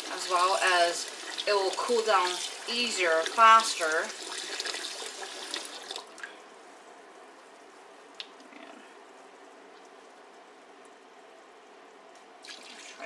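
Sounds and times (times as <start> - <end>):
tap water running into sink: 0.0 - 6.3, 12.4 - 13.0.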